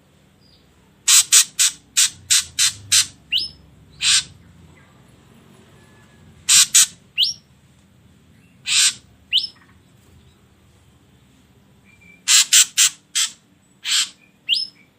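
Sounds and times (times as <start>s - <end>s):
bird harsh rasping calls: 1.1s - 4.9s, 6.4s - 7.5s, 8.4s - 9.8s, 11.9s - 14.9s.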